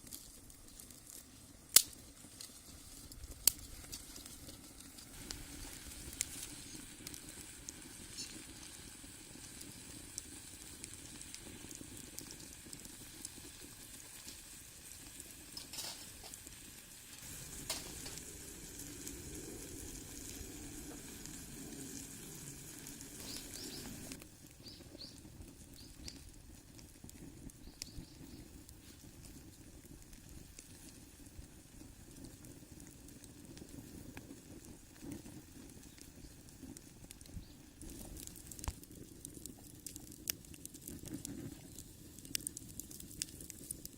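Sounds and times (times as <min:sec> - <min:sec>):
wood fire crackles: 0:00.0 - 0:43.9
food sizzling in a skillet: 0:02.3 - 0:26.2.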